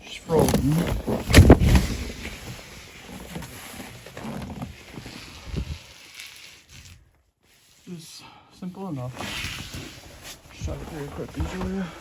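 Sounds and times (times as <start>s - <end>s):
soft thumps and scuffs: 9.3s - 12.0s.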